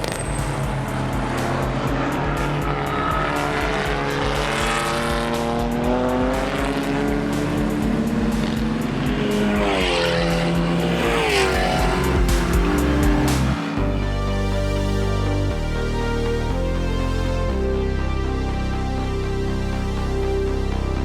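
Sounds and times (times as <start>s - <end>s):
racing car engines: 0.0s - 16.6s
background music with beat: 0.0s - 21.0s.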